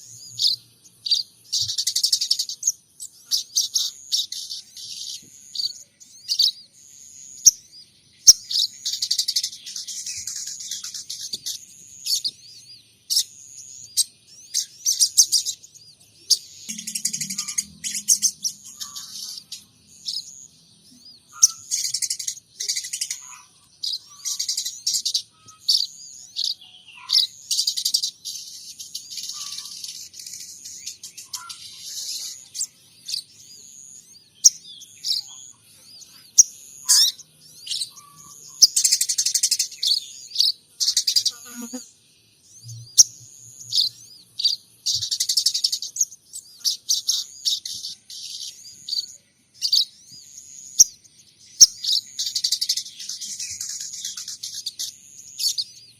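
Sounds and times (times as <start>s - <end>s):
songbird chirps and trills: 0.0s - 55.9s.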